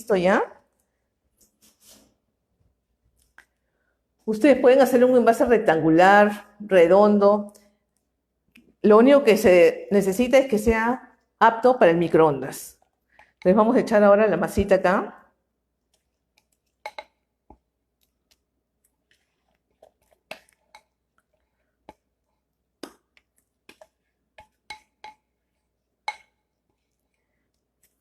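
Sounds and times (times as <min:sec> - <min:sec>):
spatula clinking against bowl: 0:16.8 - 0:17.2, 0:23.7 - 0:25.3, 0:26.0 - 0:26.4.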